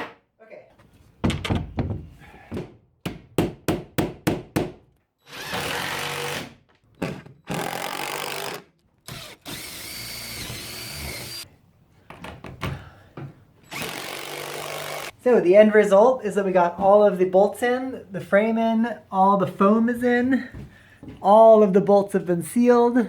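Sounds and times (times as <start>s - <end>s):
power drill driving screws: 5.2s - 11.4s, 13.6s - 15.1s.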